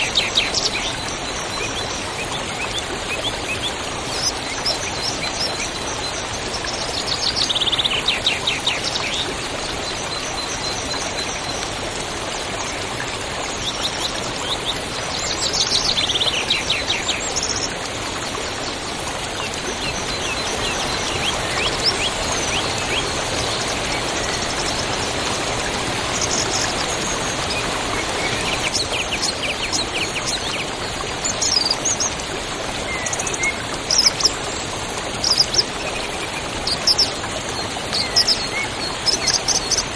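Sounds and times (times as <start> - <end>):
songbirds trilling and chirping: 18.7 - 39.9.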